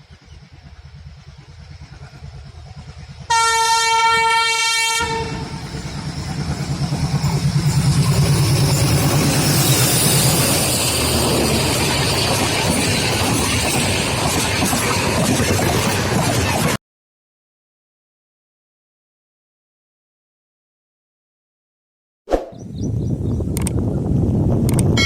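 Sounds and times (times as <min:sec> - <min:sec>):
locomotive rumbling: 0:00.0 - 0:16.8
train passing with rhythmic clatter: 0:00.0 - 0:16.8
train horn blast: 0:03.3 - 0:05.6.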